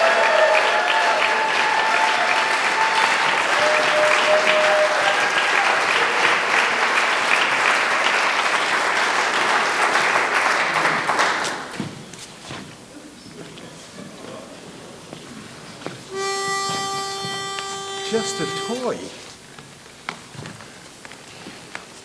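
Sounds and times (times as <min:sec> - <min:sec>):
long cheers: 0:00.0 - 0:06.4
audience applauding: 0:00.0 - 0:11.8.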